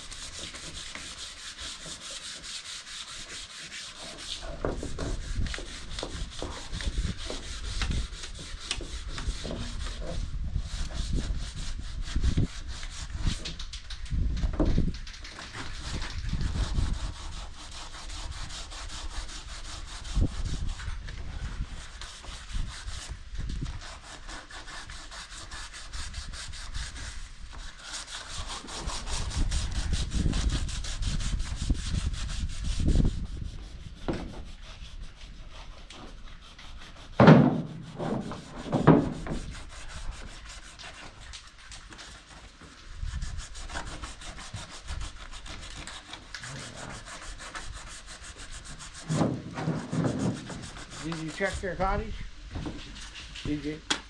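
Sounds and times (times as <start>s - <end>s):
sandpaper rubbing on metal: 0.0s - 13.9s, 15.0s - 52.2s, 52.8s - 53.8s
loud knocks: 37.2s - 39.4s.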